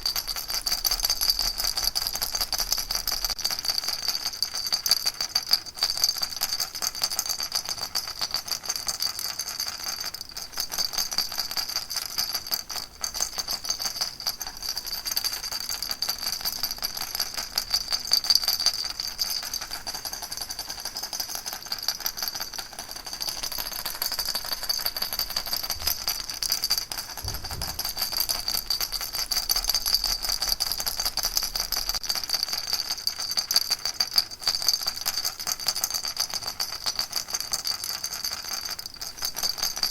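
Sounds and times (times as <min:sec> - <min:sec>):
baby rattle shaking: 0:07.4 - 0:36.5.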